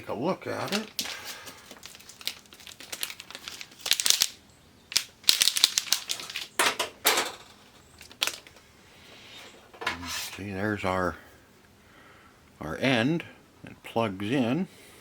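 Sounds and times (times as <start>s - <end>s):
plastic packaging crinkling: 0.5s - 8.7s.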